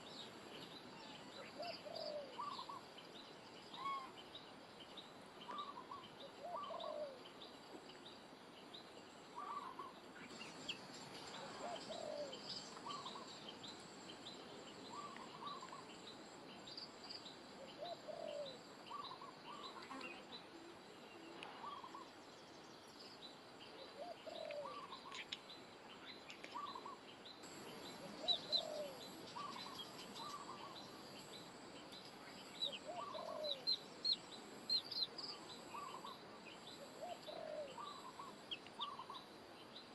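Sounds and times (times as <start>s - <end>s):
low repeating bird call: 9.4s - 10.0s, 32.6s - 33.9s.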